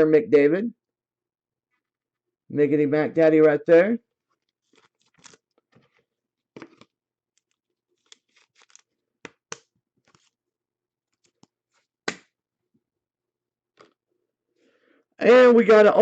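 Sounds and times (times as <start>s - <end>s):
trading cards and packaging rustling: 4.2s - 10.4s.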